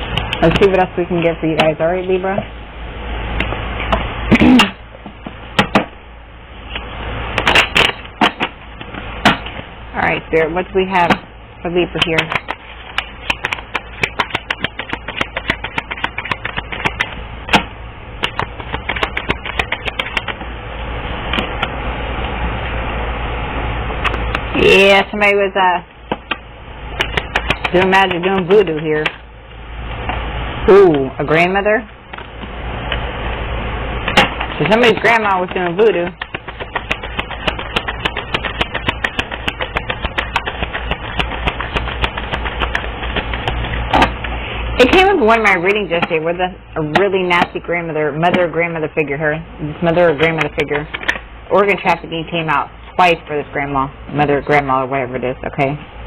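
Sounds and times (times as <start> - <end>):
steady low hum: 0.0 - 56.0
cards being shuffled: 12.0 - 17.6, 18.2 - 20.4, 27.0 - 29.2, 34.1 - 44.3.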